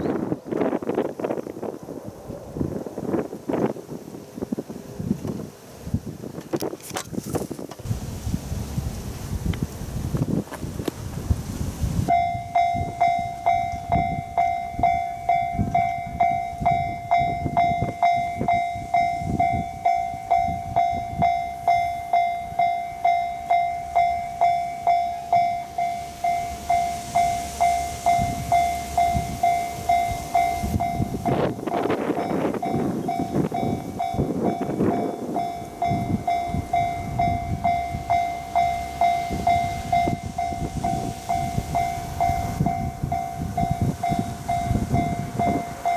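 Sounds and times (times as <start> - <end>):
train passing: 0.0 - 6.5, 7.8 - 45.9
wind on microphone: 0.0 - 45.9
level-crossing warning bell: 12.1 - 45.9.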